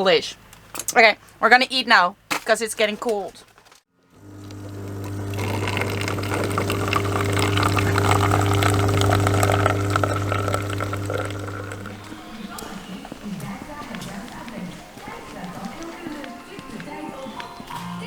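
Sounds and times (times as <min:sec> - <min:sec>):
electric pump humming: 0:04.1 - 0:16.1
water running: 0:04.1 - 0:18.0.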